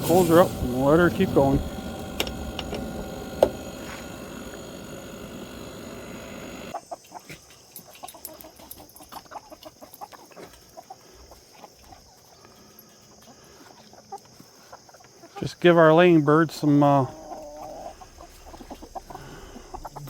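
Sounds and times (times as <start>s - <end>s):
steady running hum: 0.0s - 6.8s, 16.5s - 20.0s
hens clucking: 16.6s - 20.0s.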